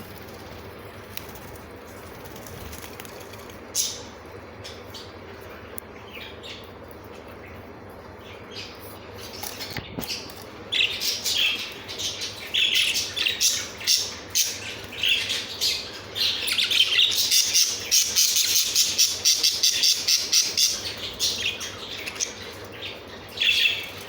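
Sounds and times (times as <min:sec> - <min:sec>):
budgerigars chattering and squawking: 0:10.1 - 0:24.0.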